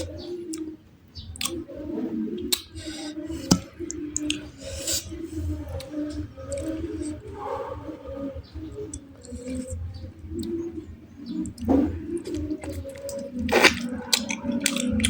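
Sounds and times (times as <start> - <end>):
mouth clicks and smacks: 1.4 - 1.6, 2.4 - 7.2, 11.3 - 15.0
wet chewing: 2.5 - 7.3, 11.3 - 15.0.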